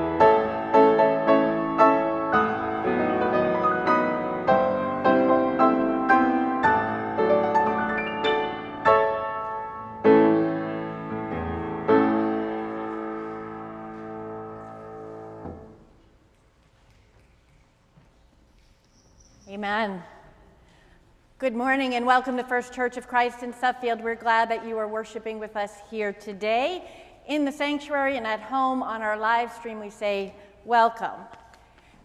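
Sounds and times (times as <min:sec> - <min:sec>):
piano playing slow chords: 0:00.0 - 0:16.0.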